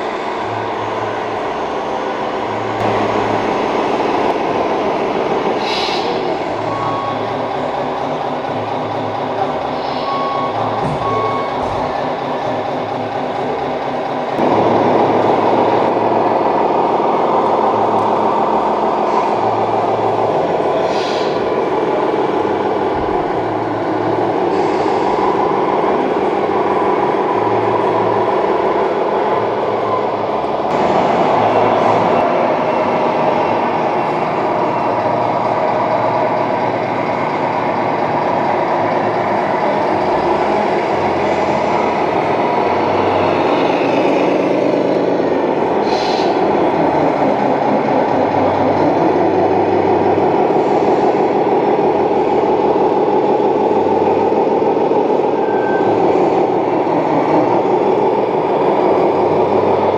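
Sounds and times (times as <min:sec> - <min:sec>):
simulated diesel truck engine: 0:00.0 - 0:59.9
air brake hisses: 0:05.6 - 0:06.2, 0:09.7 - 0:10.3, 0:20.8 - 0:21.4, 0:24.5 - 0:25.2, 0:45.8 - 0:46.4
short reversing beeps: 0:10.0 - 0:11.6.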